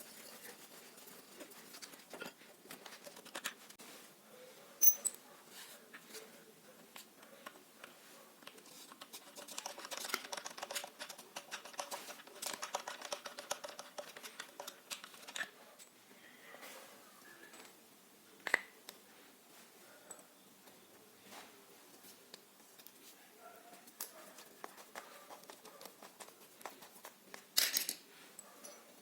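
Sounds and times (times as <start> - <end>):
scratches and clicks of hand work: 0.4 - 3.8, 6.9 - 15.9, 23.8 - 28.9.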